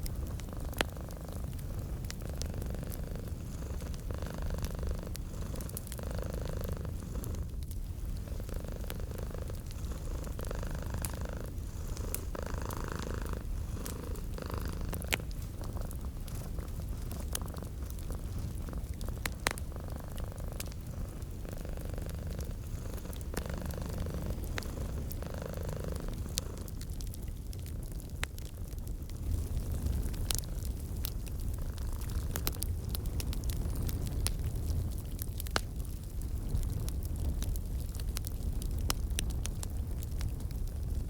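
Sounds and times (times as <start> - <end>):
cat purring: 0.0 - 27.6
fireplace crackling: 0.0 - 41.0.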